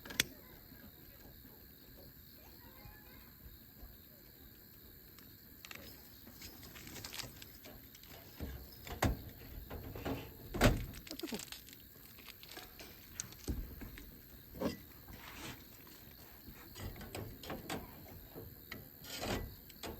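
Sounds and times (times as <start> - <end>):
objects clicking and rattling: 5.6 - 14.9.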